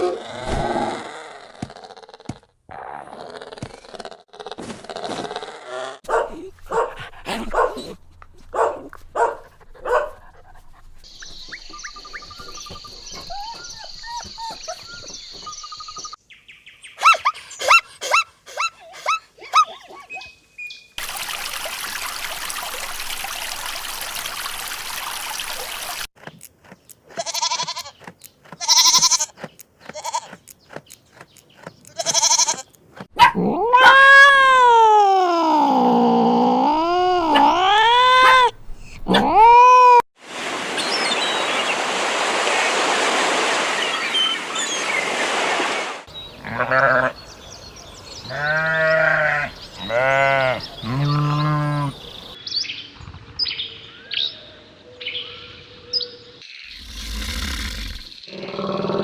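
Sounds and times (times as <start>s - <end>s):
bird chirping: 11.0s - 17.8s, 43.8s - 45.1s, 50.6s - 57.0s
goat bleating: 27.2s - 28.0s, 28.6s - 30.4s, 31.9s - 32.7s, 46.4s - 47.2s, 48.3s - 52.0s
cat yowling: 33.2s - 36.0s, 36.8s - 40.0s.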